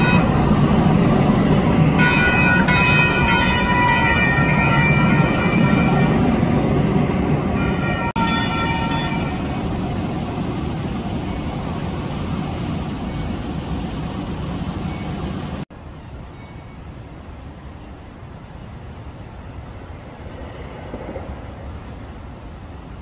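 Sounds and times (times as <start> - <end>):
train horn: 0.0 - 1.0, 1.8 - 6.5, 7.5 - 13.3
light rail train rumbling past: 0.0 - 23.0
street and traffic noise: 0.0 - 23.0.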